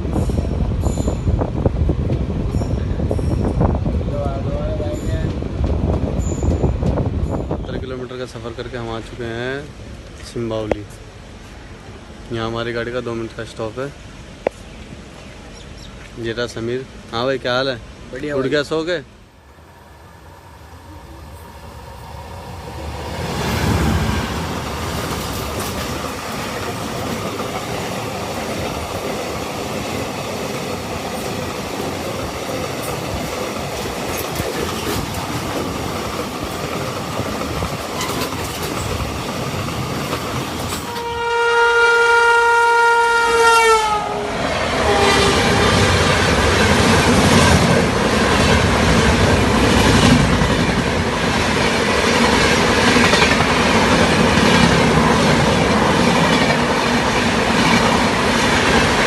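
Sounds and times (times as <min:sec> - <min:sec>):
train running on rails: 0:00.0 - 0:59.0
wheels clacking over rail joints: 0:21.2 - 0:41.2, 0:45.2 - 0:59.0
train horn blast: 0:40.8 - 0:45.9.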